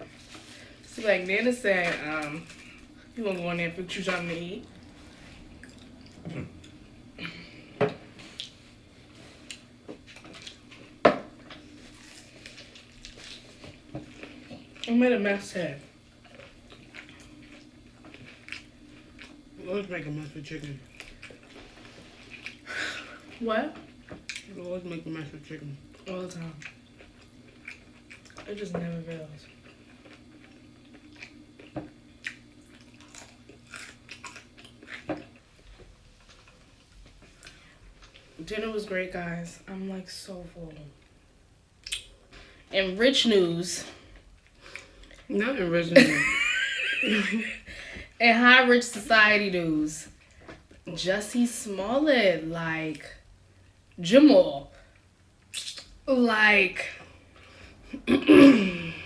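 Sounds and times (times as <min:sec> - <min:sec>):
person chewing and biting food: 0:16.2 - 0:19.4, 0:26.6 - 0:28.4, 0:29.5 - 0:35.6.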